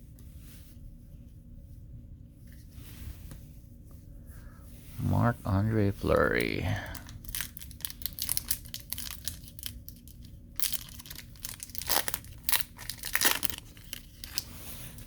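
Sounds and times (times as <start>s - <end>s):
card pack crinkling and rustling: 6.1s - 15.0s.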